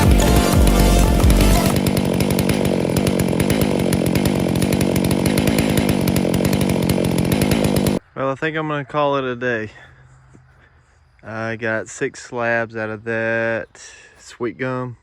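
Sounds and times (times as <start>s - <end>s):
music with heavy bass: 0.0s - 1.8s
chainsaw running: 0.0s - 8.0s.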